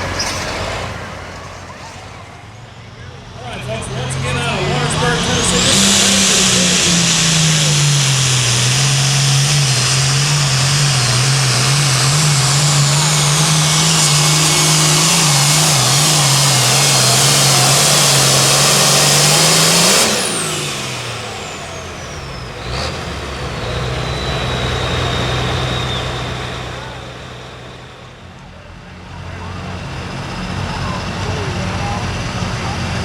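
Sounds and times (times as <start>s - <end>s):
diesel tractor engine under load: 0.0s - 33.0s
high turbo whistle: 3.4s - 27.3s.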